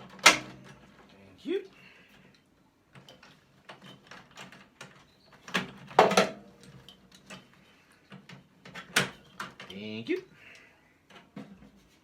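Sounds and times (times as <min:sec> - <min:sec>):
tools and metal parts clicking: 0:02.2 - 0:10.0.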